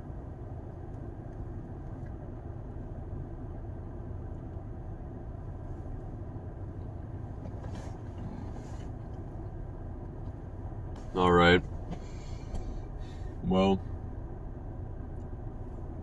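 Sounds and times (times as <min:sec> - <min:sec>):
vehicle running rumble: 0:00.0 - 0:16.0
soft rustles: 0:07.2 - 0:09.4.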